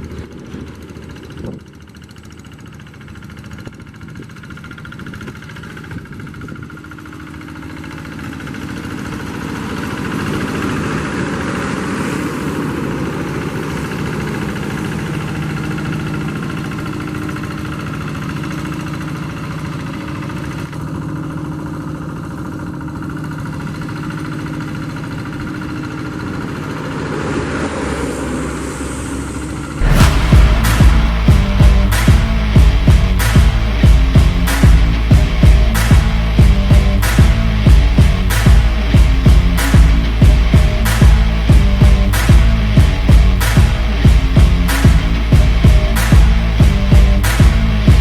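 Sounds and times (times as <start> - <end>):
diesel tractor engine running: 0.0 - 48.0
loud music: 29.8 - 48.0.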